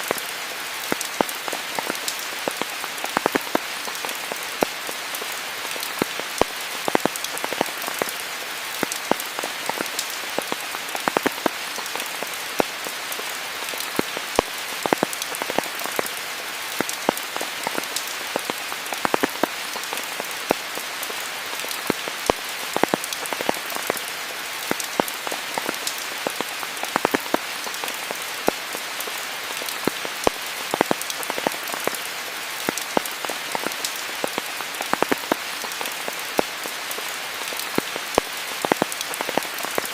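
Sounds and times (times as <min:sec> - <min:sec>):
rain falling on foliage: 0:00.0 - 0:39.9.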